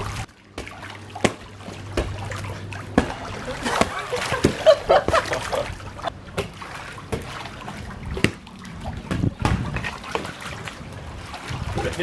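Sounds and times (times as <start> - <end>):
ball being hit: 0.0 - 5.6, 8.1 - 8.4, 9.1 - 9.8
pool water splashing: 0.0 - 12.0.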